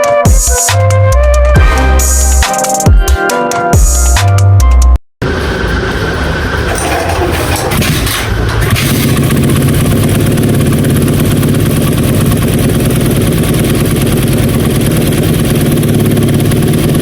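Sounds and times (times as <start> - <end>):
vehicle engine running: 5.2 - 17.0.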